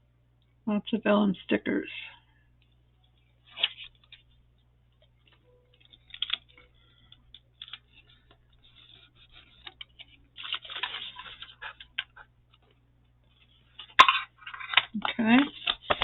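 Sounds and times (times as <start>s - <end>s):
paper rustling: 5.2s - 16.0s.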